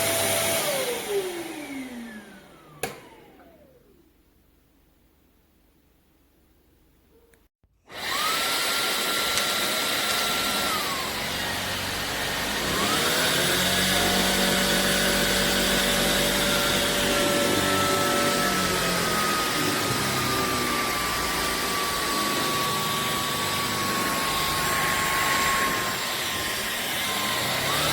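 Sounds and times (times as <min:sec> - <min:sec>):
vacuum motor whining: 0:00.0 - 0:04.0, 0:07.9 - 0:27.9.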